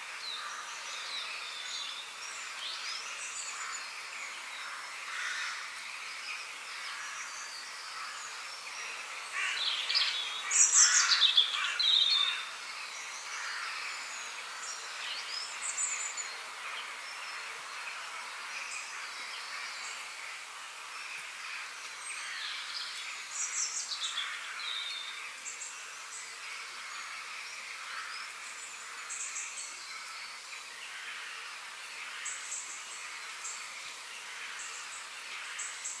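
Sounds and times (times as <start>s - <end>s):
faint steady hiss: 0.0s - 36.0s
songbirds chirping and singing: 0.1s - 20.2s.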